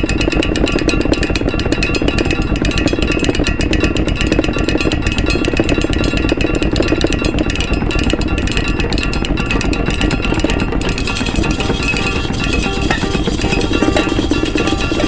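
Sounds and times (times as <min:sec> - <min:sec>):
washing machine clattering: 0:07.4 - 0:15.0
maracas: 0:10.8 - 0:15.0.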